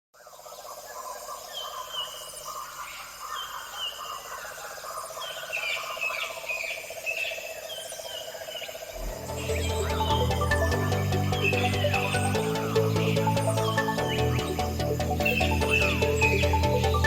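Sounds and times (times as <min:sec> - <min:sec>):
birds whistling calls: 0:09.0 - 0:17.0.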